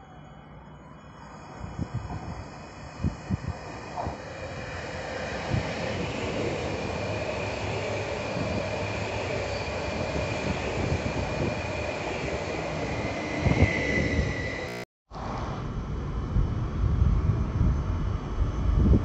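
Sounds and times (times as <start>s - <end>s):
train rolling rumble: 0.0s - 14.6s.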